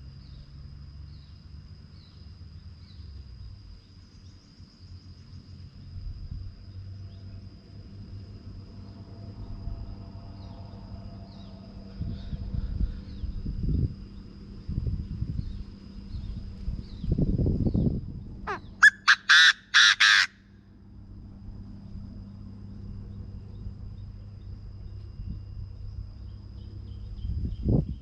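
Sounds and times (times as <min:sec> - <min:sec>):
francolin calling: 0:18.5 - 0:20.4.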